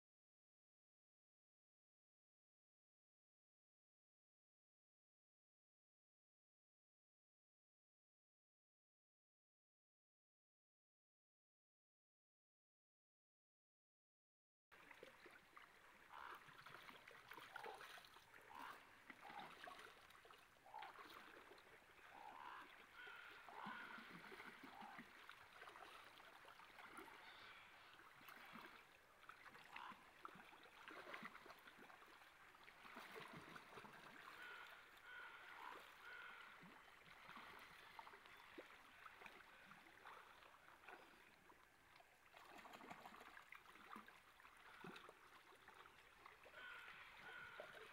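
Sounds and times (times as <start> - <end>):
stream running: 14.8 - 47.9
short bird calls: 22.2 - 24.5, 34.3 - 36.6.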